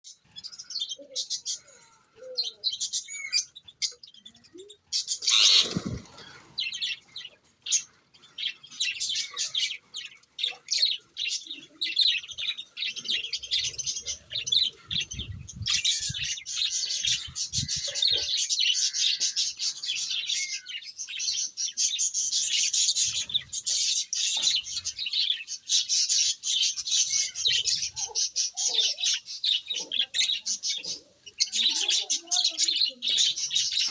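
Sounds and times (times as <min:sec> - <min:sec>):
parrots chirping and chattering: 0:00.1 - 0:33.9.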